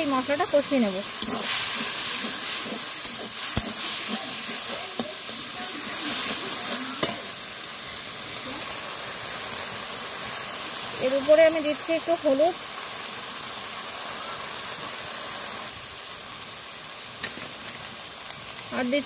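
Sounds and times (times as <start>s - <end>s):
spice paste sizzling: 0.0s - 19.0s
metal spatula scraping pan: 0.5s - 7.3s.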